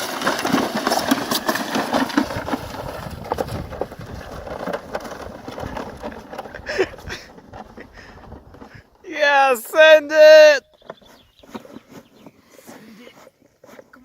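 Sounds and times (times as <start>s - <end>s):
knocks and rattles: 0.0s - 8.7s
sled scraping downhill: 0.0s - 14.0s.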